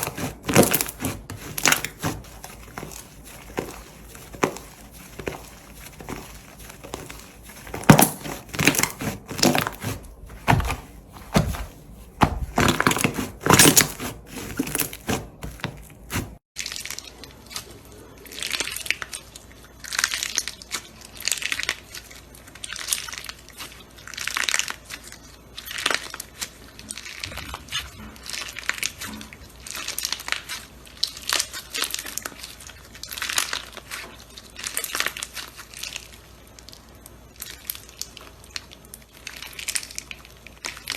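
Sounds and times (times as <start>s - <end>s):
slime squishing and crackling: 0.0s - 17.6s, 28.2s - 40.9s.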